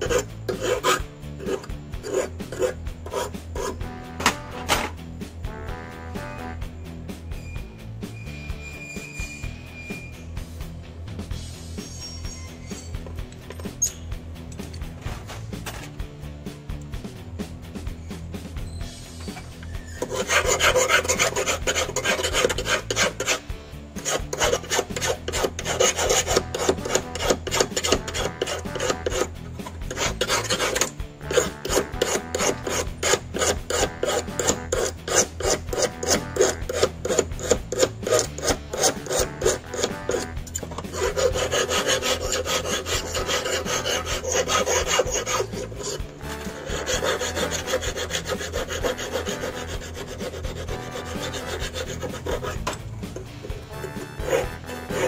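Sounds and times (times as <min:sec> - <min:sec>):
file rasping on steel wire: 0:00.0 - 0:03.9, 0:19.2 - 0:55.0.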